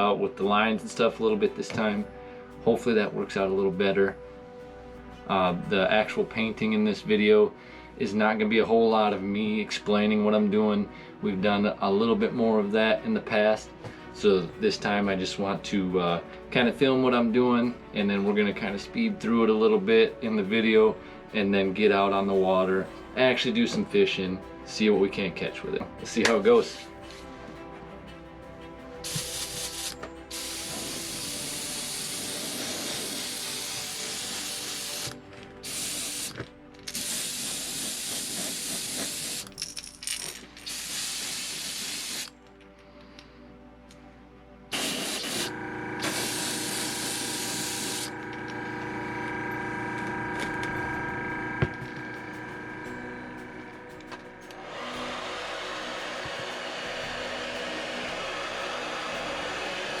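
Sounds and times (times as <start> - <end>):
airbrush spraying hiss: 29.0 - 39.5, 40.6 - 42.3, 44.8 - 48.1, 54.8 - 60.0.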